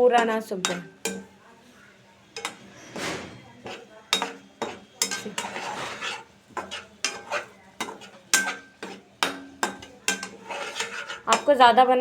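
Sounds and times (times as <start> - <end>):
utensil scraping and knocking pan: 0.0 - 1.4, 2.3 - 12.0.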